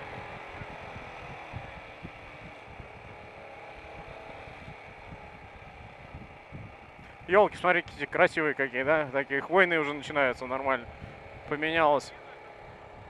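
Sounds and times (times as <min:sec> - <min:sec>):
wind rumbling on microphone: 0:00.0 - 0:08.3, 0:10.2 - 0:11.6, 0:12.6 - 0:13.0
motorcycle engine running: 0:00.0 - 0:13.0.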